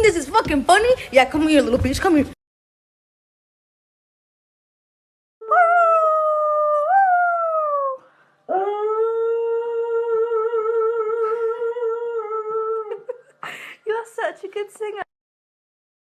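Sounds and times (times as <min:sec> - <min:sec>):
dog howling: 0:05.4 - 0:12.9.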